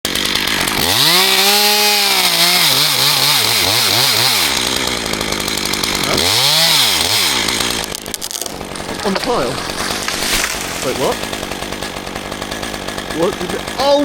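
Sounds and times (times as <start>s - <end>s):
chainsaw revving: 0.0s - 14.0s.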